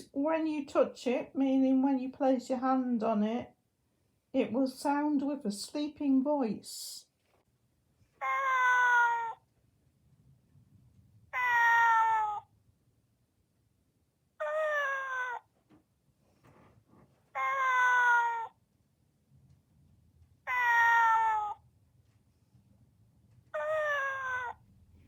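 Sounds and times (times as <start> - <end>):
robotic cat meowing: 8.2 - 9.4, 11.3 - 12.5, 14.4 - 15.4, 17.4 - 18.5, 20.5 - 21.6, 23.6 - 24.6.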